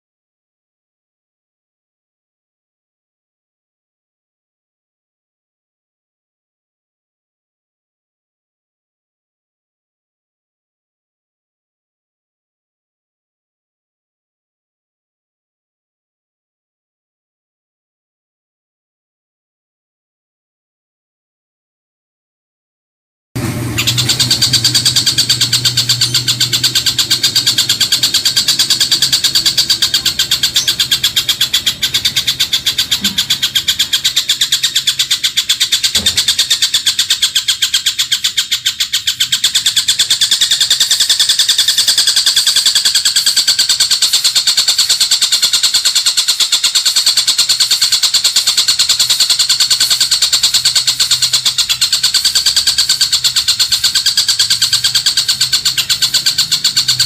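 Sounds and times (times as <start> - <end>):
rapid rattling bird trills: 23.4 - 57.0.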